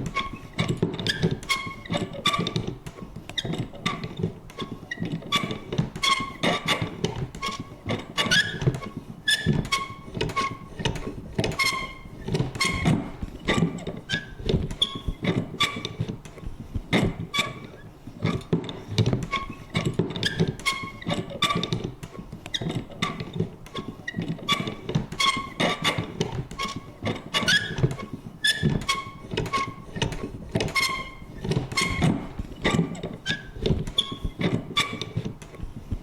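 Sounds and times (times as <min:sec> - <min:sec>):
squeaky creaks: 0:00.0 - 0:35.6.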